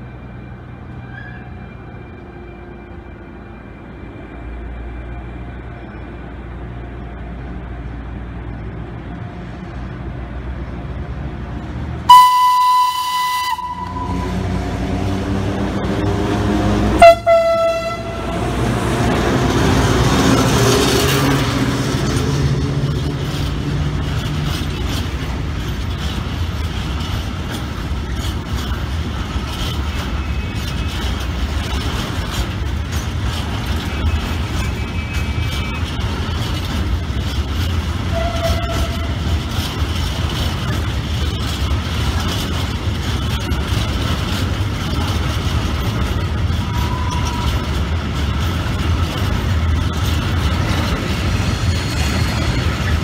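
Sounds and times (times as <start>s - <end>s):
train passing rumble: 0.0s - 53.0s
train horn blasts: 12.1s - 14.6s, 16.6s - 18.6s, 38.1s - 39.2s.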